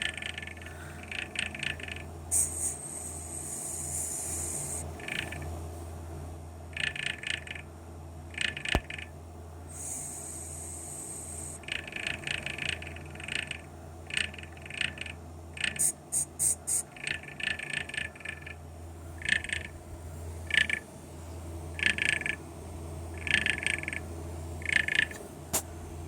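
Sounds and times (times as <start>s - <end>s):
fan chirping squeaks: 0.0s - 5.6s, 8.3s - 19.8s, 20.4s - 20.9s, 21.7s - 22.5s, 23.1s - 25.2s
fan humming: 0.0s - 26.0s.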